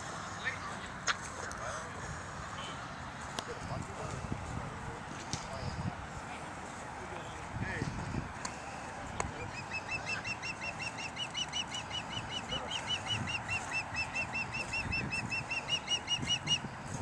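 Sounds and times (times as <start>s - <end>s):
bird calling rapid high notes: 9.4s - 16.7s.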